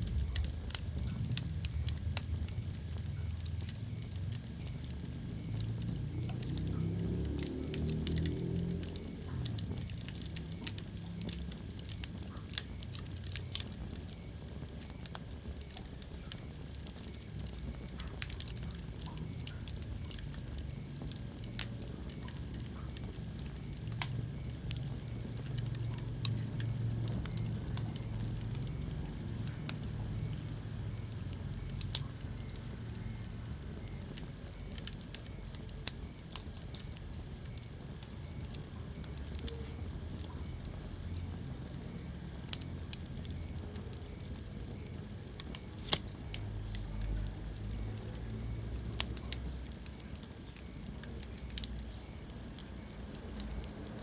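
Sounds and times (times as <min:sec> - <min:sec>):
low steady rumble: 0:00.0 - 0:54.0
wood fire crackling and popping: 0:00.0 - 0:54.0.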